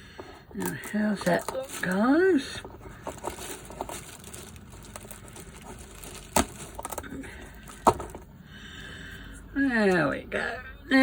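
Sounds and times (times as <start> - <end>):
light crinkling: 0.1 - 7.8.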